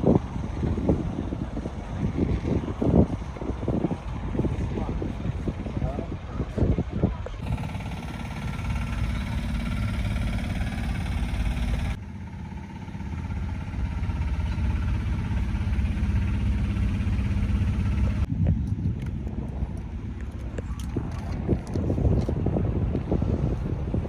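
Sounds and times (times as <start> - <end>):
diesel truck engine idling: 7.4 - 18.3.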